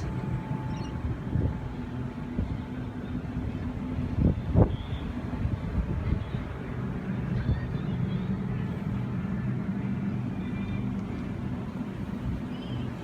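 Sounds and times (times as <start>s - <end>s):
electric train humming: 0.0s - 13.0s
faint voices: 5.8s - 13.0s.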